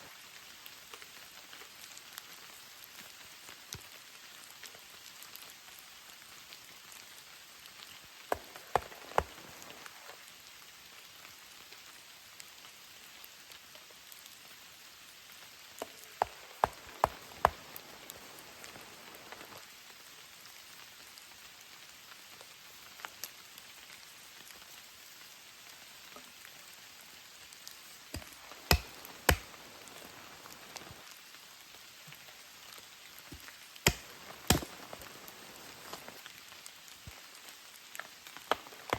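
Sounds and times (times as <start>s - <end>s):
rain hissing: 5.3s - 13.1s, 14.1s - 22.9s, 25.6s - 38.9s.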